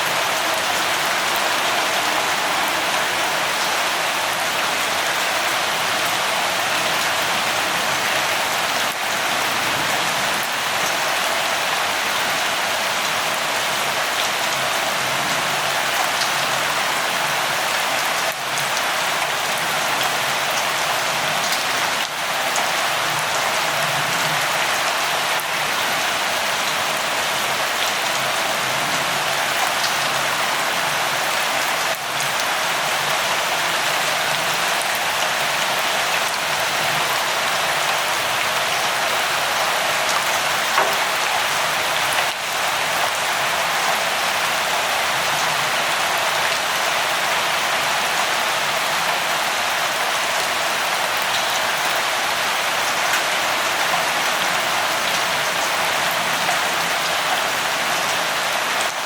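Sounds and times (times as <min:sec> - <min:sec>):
rain hissing: 0:00.0 - 0:06.6.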